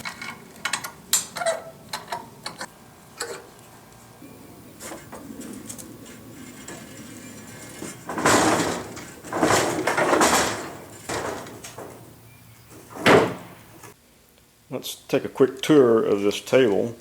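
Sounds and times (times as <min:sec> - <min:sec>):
metal parts scraping: 0:04.7 - 0:13.9.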